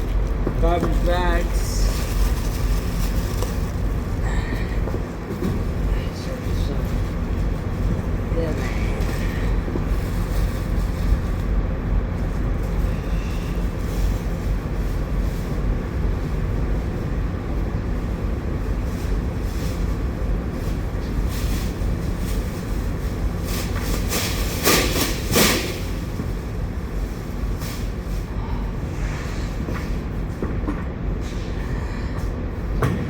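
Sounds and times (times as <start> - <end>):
engine rumble idling: 0.0 - 23.9.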